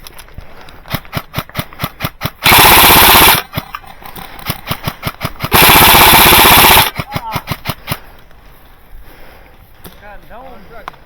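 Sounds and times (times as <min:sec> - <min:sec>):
airsoft machine gun bursts: 0:00.9 - 0:08.0
airsoft fire cracks: 0:01.1 - 0:03.5, 0:04.6 - 0:08.0.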